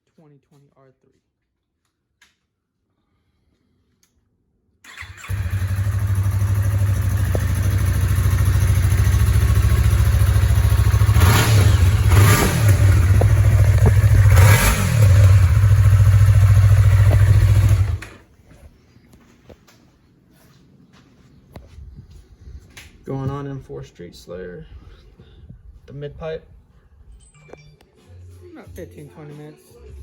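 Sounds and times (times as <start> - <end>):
motorcycle engine idling and revving: 4.9 - 18.3.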